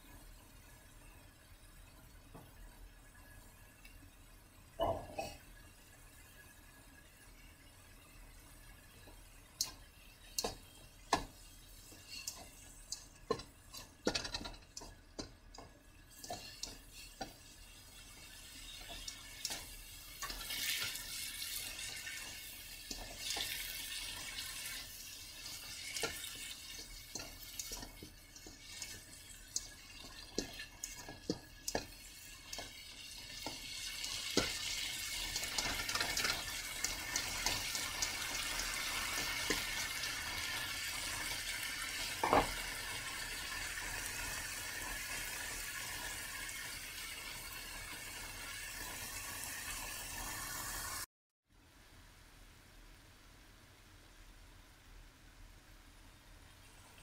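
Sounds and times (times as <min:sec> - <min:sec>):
meat and tomatoes sizzling: 0:00.0 - 0:51.1
spatula scraping a pan: 0:10.2 - 0:37.7.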